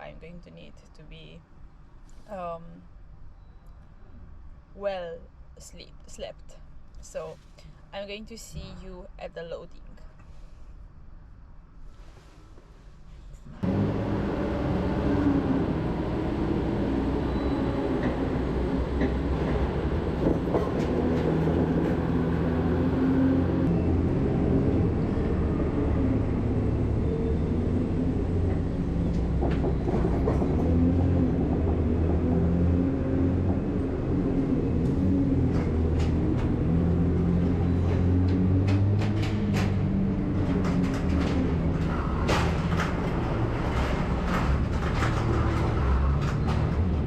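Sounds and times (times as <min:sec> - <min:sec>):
road noise: 0:10.2 - 0:47.0
truck engine drone: 0:13.6 - 0:47.0.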